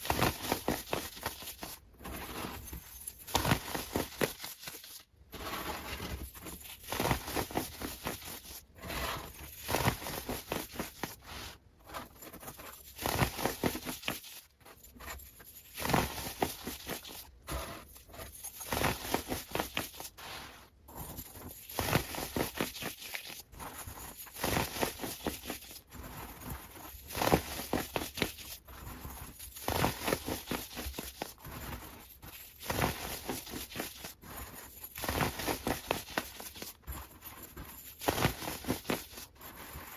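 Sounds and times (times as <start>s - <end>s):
crackling and crinkling material: 0.0s - 39.9s.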